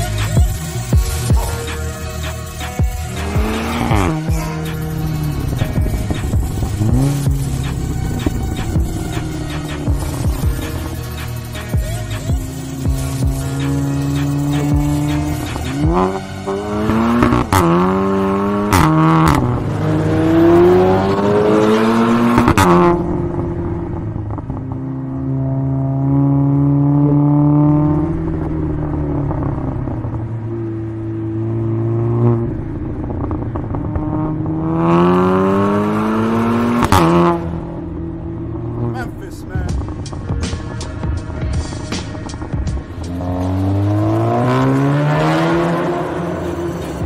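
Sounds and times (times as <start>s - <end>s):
car engine accelerating: 0.0s - 47.0s
sharp exhaust cracks: 0.1s - 17.9s.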